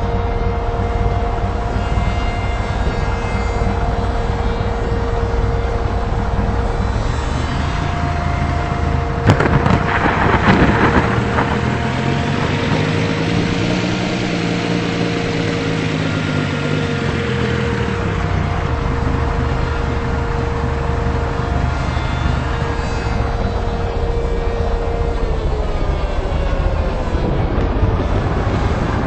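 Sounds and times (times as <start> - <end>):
vehicle running: 0.0 - 29.0.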